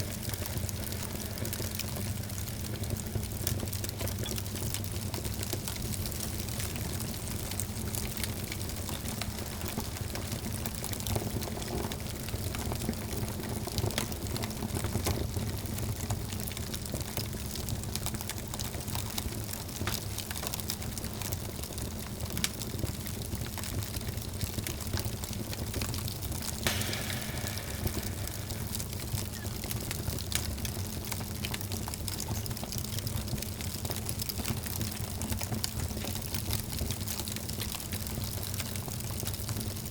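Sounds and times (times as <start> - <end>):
fire crackling and popping: 0.0 - 39.9
rumble of fire flames: 0.0 - 39.9
fire hissing: 26.7 - 30.3.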